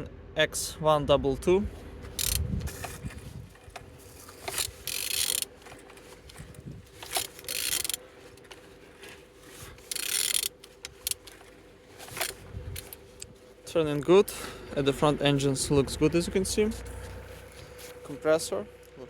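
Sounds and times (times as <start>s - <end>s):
engine clicking and rasping: 1.7s - 19.0s.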